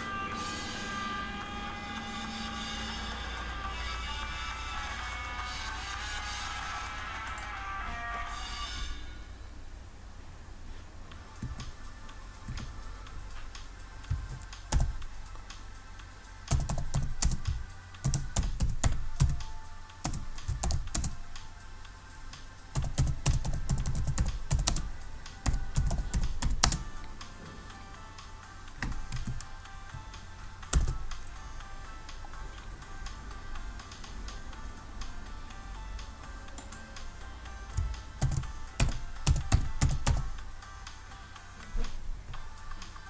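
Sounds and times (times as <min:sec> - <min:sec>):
quiet background music: 0:00.0 - 0:43.0
typing on a computer keyboard: 0:14.1 - 0:15.0, 0:16.5 - 0:21.2, 0:22.7 - 0:26.9, 0:28.8 - 0:29.5, 0:30.7 - 0:31.2, 0:37.7 - 0:40.3.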